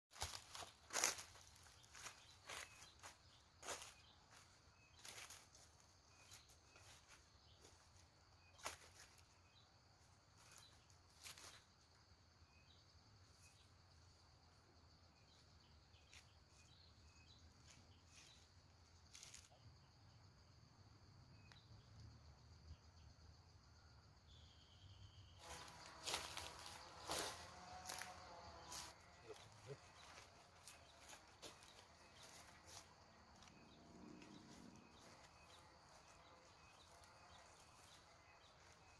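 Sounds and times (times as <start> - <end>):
faint chirps: 0.2 - 38.9
high insect drone: 8.6 - 38.9.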